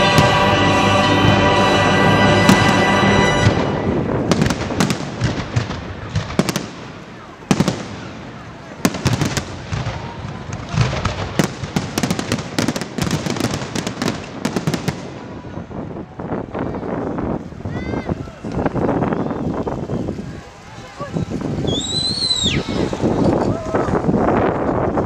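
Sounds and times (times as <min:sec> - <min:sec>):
fireworks bursting with sharp bangs: 0:00.0 - 0:00.8, 0:02.4 - 0:16.0
fireworks crackling: 0:00.0 - 0:17.7, 0:18.4 - 0:25.0.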